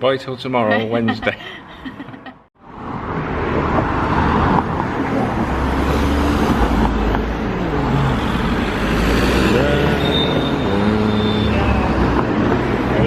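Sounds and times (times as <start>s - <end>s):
vehicle engine and road rumble: 2.6s - 13.0s.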